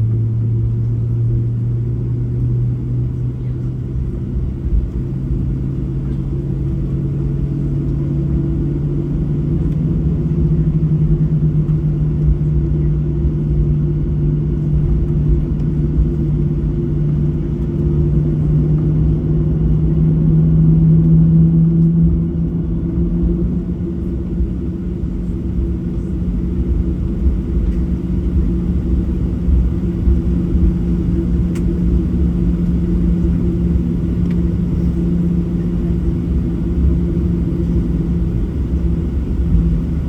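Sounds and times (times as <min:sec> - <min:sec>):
jet engine cabin drone: 0:00.0 - 0:40.0.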